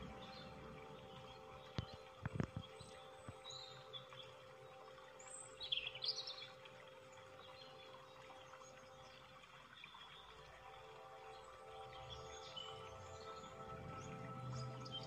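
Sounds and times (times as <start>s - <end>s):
bird chirping: 0.0s - 4.2s
faint steady hum: 0.0s - 15.0s.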